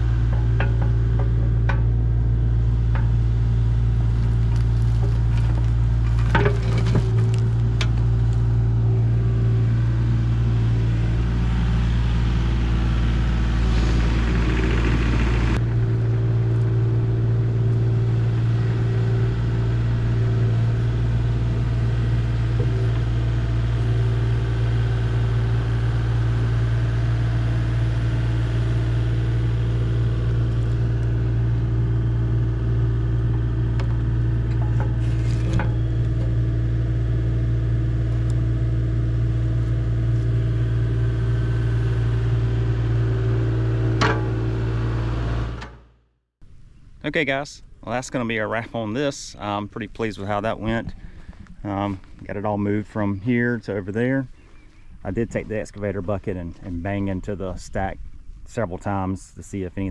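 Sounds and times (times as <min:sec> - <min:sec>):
excavator diesel engine running: 0:00.0 - 0:45.8.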